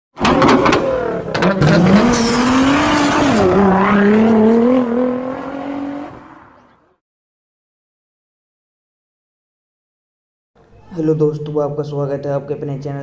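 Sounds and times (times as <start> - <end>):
exhaust pops and backfires: 0.2 - 3.6
car engine revving: 0.2 - 7.0.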